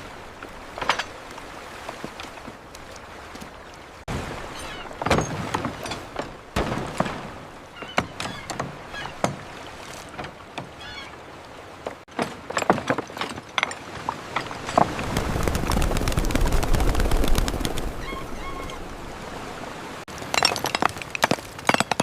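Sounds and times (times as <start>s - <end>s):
construction knocks and thuds: 4.9s - 9.5s, 11.9s - 15.0s
short wavering high calls: 18.0s - 18.9s.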